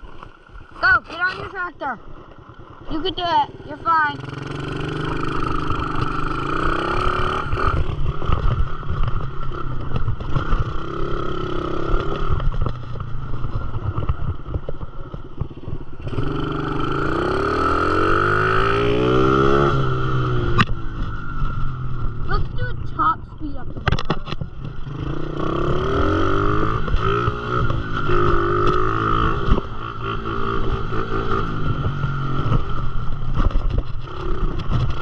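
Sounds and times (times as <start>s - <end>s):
dirt bike engine revving: 2.7s - 9.6s, 10.2s - 12.5s, 16.0s - 22.4s, 24.8s - 35.0s.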